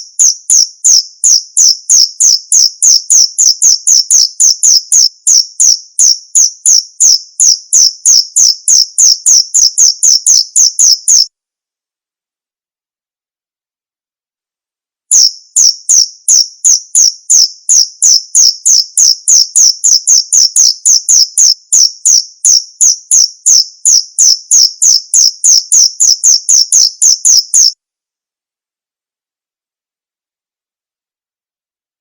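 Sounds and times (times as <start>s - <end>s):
cricket chirping: 0.0s - 11.3s, 15.1s - 27.8s.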